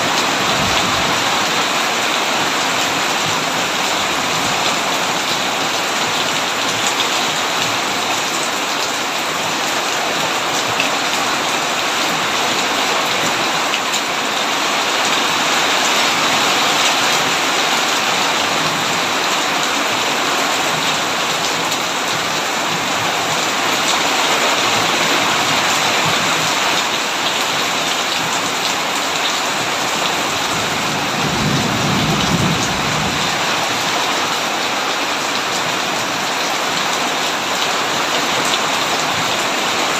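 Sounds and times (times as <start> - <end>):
heavy rain on a tin roof: 0.0 - 39.9
distant thunder rumble: 30.6 - 33.9.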